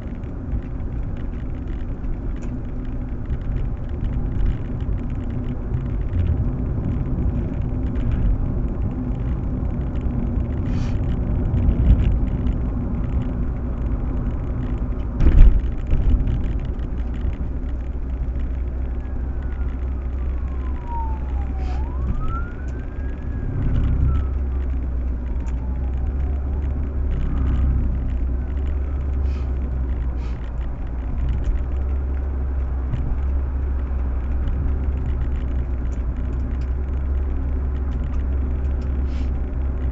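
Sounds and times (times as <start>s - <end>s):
car road and engine rumble: 0.0s - 39.9s
siren wailing: 18.6s - 27.5s, 28.5s - 29.3s.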